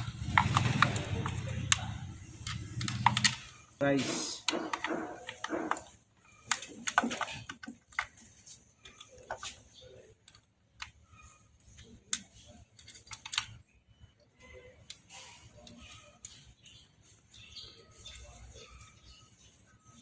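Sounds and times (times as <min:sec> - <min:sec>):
small metal objects clinking: 0:05.2 - 0:20.0.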